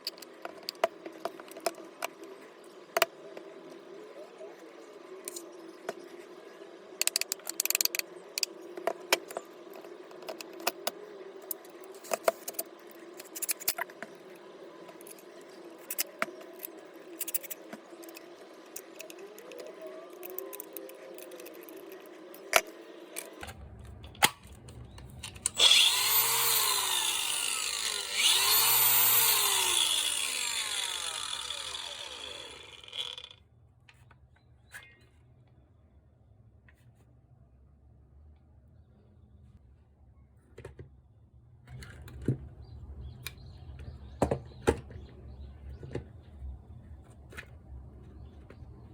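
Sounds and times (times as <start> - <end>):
disc grinder whining: 25.5 - 33.3.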